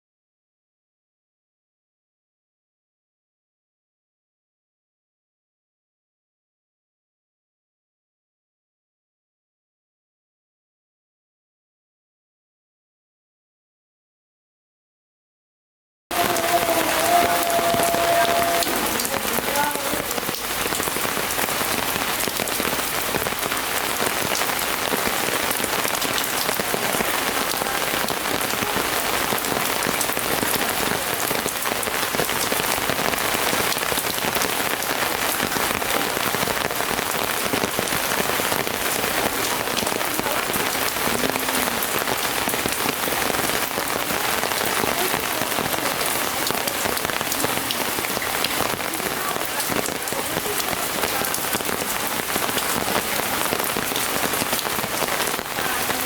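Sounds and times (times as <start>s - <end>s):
rain falling steadily: 16.1s - 56.0s.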